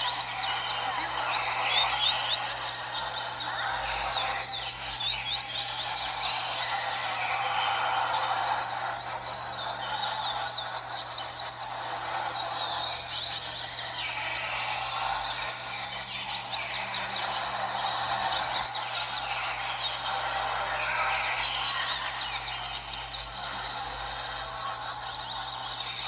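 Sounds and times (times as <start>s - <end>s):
chorus of small birds singing: 0.0s - 26.0s.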